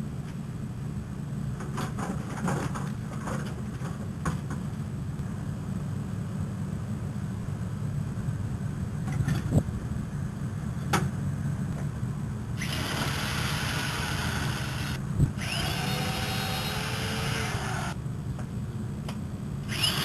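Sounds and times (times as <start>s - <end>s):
steady low hum: 0.0s - 20.0s
power tool whining: 12.6s - 18.0s, 19.7s - 20.0s.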